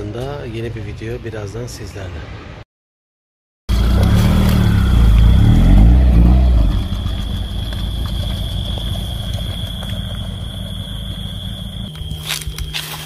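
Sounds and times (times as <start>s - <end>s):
car engine running: 3.7s - 13.0s.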